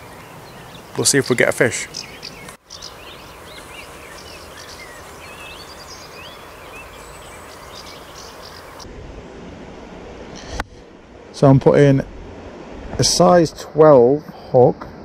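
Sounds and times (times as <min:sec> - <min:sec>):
small birds chirping: 0:00.0 - 0:08.9
steady hiss: 0:00.9 - 0:08.9.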